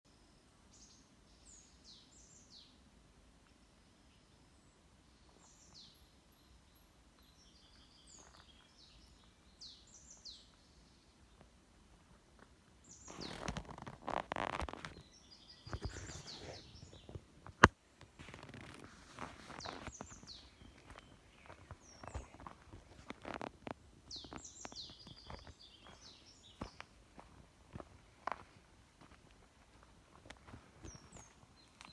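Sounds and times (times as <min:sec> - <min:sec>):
small birds chirping: 0:00.7 - 0:02.8, 0:03.4 - 0:11.6, 0:12.8 - 0:31.9
footsteps on forest path: 0:08.1 - 0:09.4, 0:12.4 - 0:15.1, 0:15.7 - 0:31.9.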